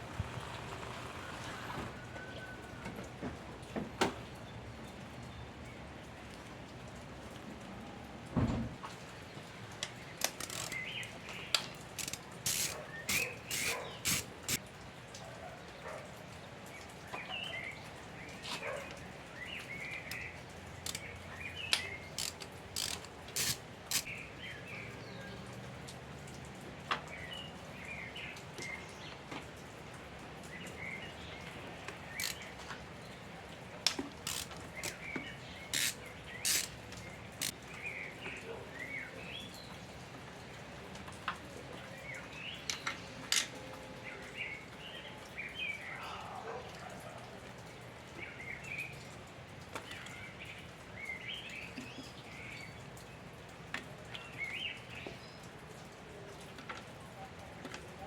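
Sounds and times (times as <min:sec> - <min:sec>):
small birds chirping: 0:09.3 - 0:14.6
sharp clicks: 0:10.2 - 0:14.6, 0:20.9 - 0:21.1, 0:21.7 - 0:24.1, 0:32.2 - 0:32.5, 0:33.9 - 0:35.2, 0:35.8 - 0:37.6.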